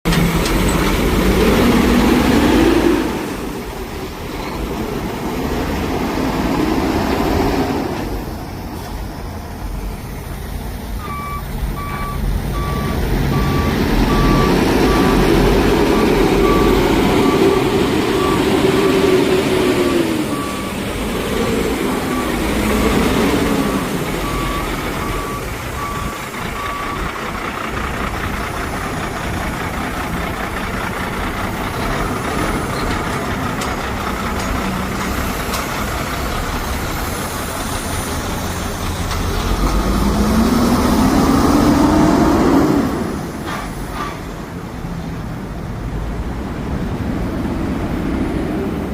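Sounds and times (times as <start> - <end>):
diesel truck engine running: 0.0 - 48.9
reversing alarm beeping: 11.0 - 27.2.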